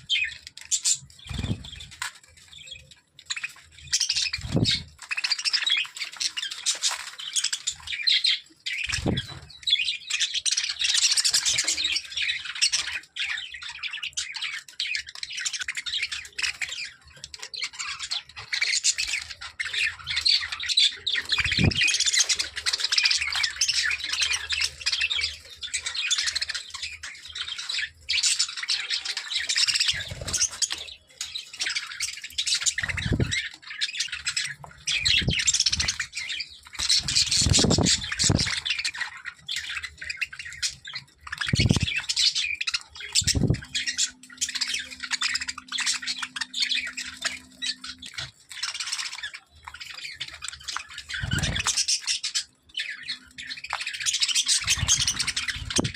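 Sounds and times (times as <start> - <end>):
parrots squawking: 31.6 - 55.9.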